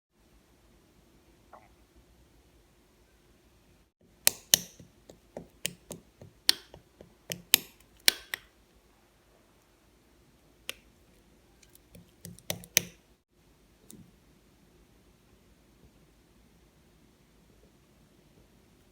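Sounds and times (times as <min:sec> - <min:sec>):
slime clicking and popping: 0:04.2 - 0:08.5, 0:11.6 - 0:13.0.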